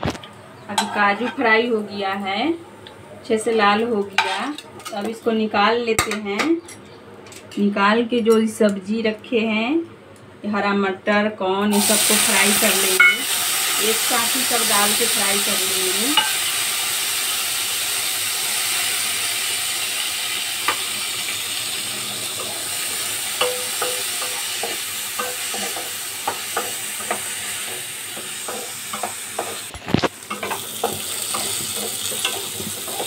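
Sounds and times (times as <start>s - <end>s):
vegetables sizzling in a pan: 11.7s - 33.0s.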